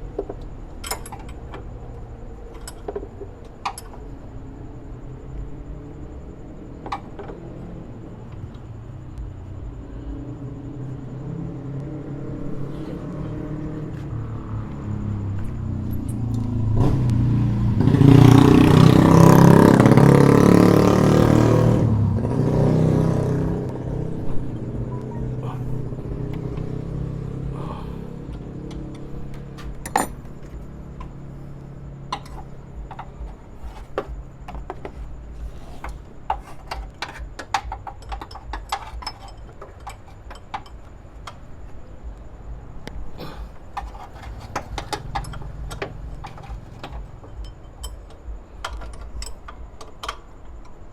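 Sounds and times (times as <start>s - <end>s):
vehicle engine running: 0.0s - 50.9s
hand tools clicking and tapping: 0.1s - 1.8s, 2.4s - 4.1s, 24.8s - 50.9s.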